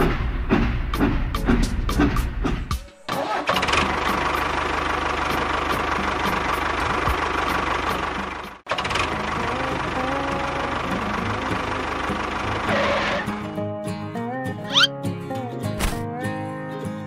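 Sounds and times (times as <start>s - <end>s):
tractor engine idling: 3.2s - 13.3s.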